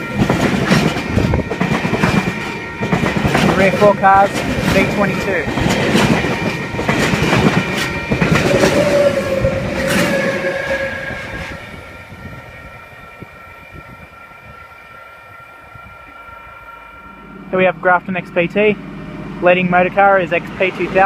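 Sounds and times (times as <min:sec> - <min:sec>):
train wheels clicking over rail joints: 0:00.0 - 0:11.7
electric train passing: 0:00.0 - 0:21.0
held tone: 0:01.2 - 0:19.4.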